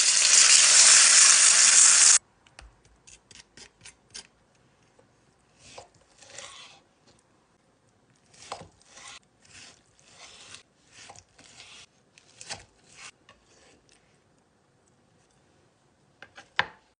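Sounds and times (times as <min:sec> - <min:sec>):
rasping scraping strokes: 0:05.6 - 0:06.9, 0:08.3 - 0:13.9.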